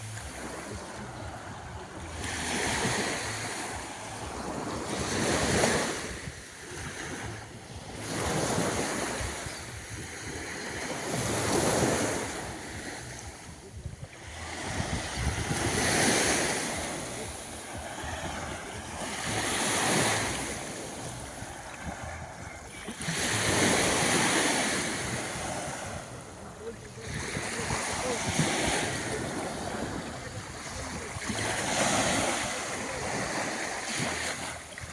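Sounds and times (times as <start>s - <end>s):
waves breaking on beach: 0.0s - 34.9s
wind on microphone: 0.0s - 34.9s.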